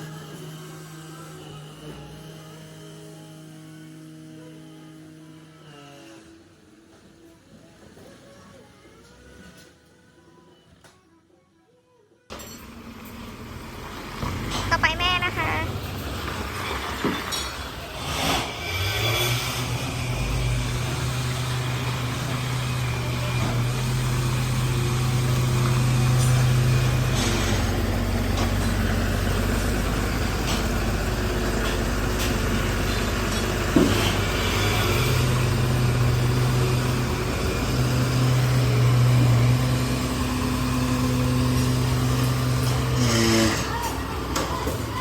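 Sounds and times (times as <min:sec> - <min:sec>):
truck engine running: 0:12.4 - 0:45.0.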